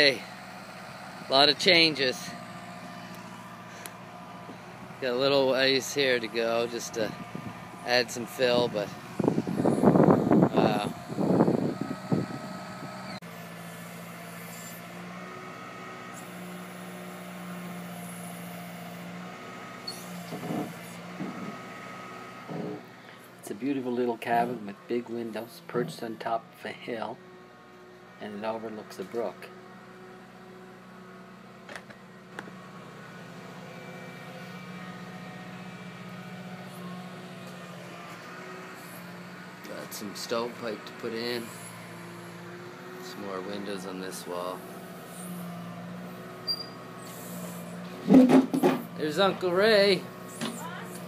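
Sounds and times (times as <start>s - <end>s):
tractor diesel engine idling: 0.0s - 13.2s, 48.9s - 51.0s
tractor engine running: 0.0s - 51.0s.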